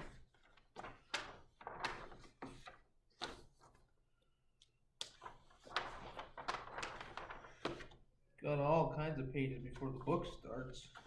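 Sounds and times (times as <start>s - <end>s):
book pages turning: 0.0s - 3.8s, 5.1s - 8.0s.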